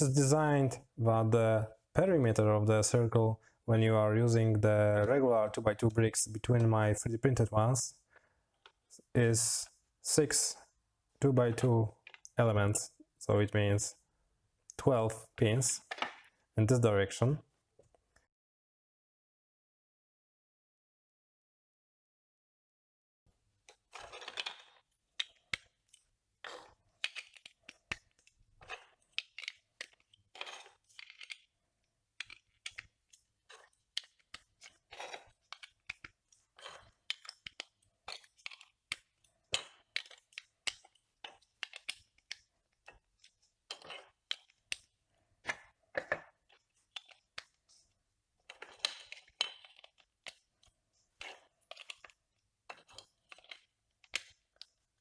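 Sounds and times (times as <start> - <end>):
plastic bricks clicking together: 23.7 - 31.6, 32.2 - 47.8, 48.4 - 54.8
plastic scraping clatters: 23.7 - 31.6, 32.2 - 44.7.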